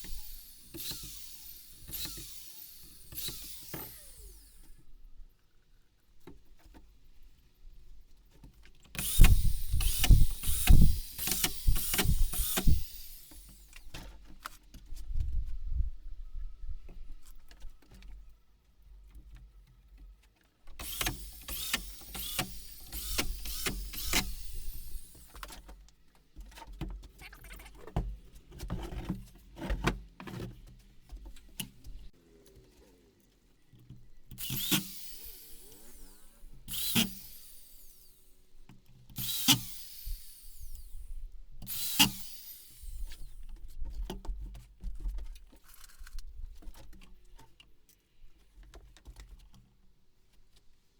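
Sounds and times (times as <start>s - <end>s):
power drill bursts: 0.0s - 4.8s, 9.0s - 13.9s, 20.8s - 25.6s, 34.3s - 38.3s, 39.2s - 41.1s, 41.7s - 43.4s.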